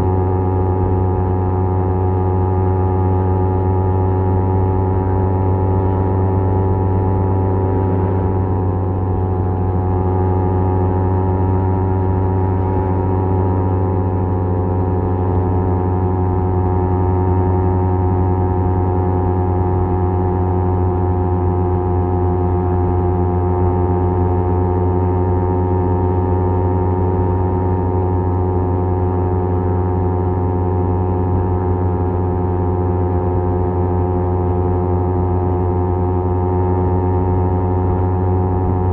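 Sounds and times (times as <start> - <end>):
motorcycle engine cruising: 5.5 - 15.4.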